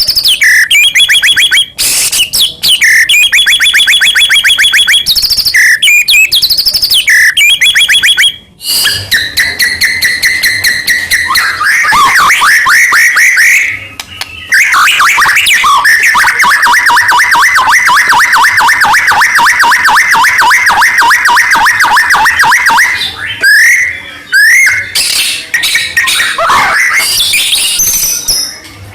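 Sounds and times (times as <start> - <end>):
songbird singing whistled trills: 0.0 - 16.5.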